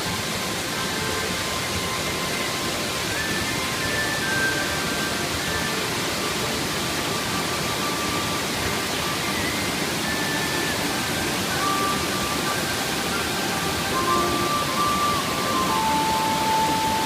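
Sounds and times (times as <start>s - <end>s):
faint melody of held notes: 0.0s - 17.0s
waterfall rushing: 0.0s - 17.0s.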